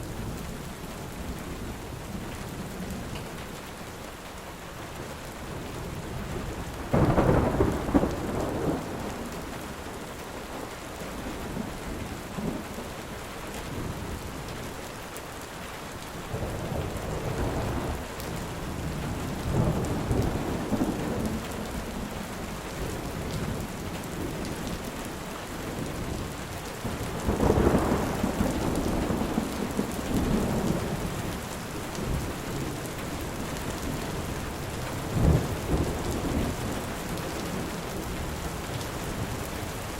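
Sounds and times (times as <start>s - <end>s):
heavy rain: 0.0s - 39.9s
thunder rumbling: 5.5s - 12.9s, 16.3s - 24.7s, 25.7s - 38.4s.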